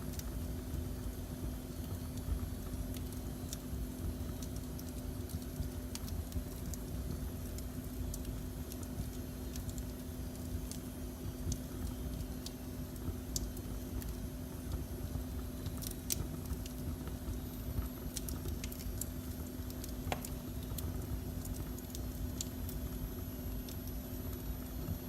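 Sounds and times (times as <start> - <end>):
constant low hum: 0.0 - 25.0
fire crackling and popping: 0.0 - 25.0.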